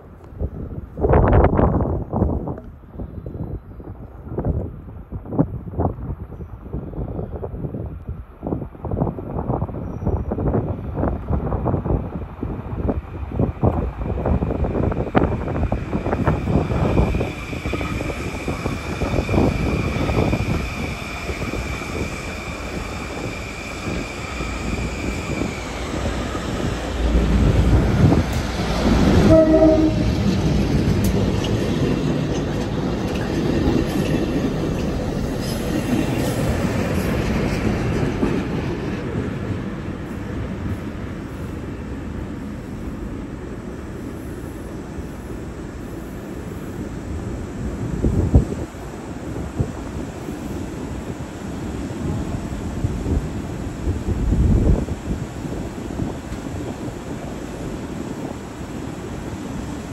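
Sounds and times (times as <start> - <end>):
train rumbling past: 0.0 - 59.9
train horn note: 29.1 - 30.3.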